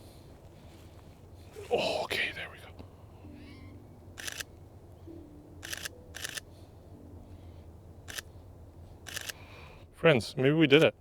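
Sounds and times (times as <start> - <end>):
camera shutter firing: 5.6 - 6.4, 9.1 - 9.4.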